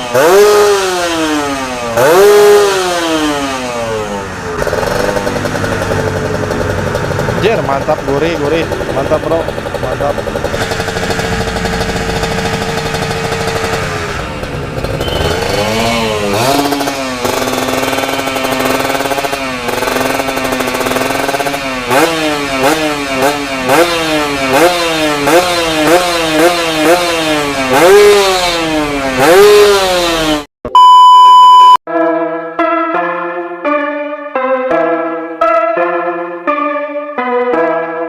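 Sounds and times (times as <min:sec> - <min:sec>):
motorcycle engine revving: 0:00.0 - 0:30.5
electronic beep: 0:30.7 - 0:31.8.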